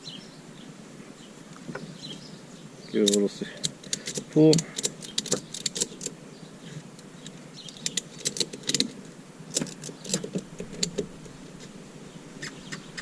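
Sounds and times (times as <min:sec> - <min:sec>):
metal hooks and buckle clinking: 0:03.0 - 0:06.2, 0:07.6 - 0:11.0.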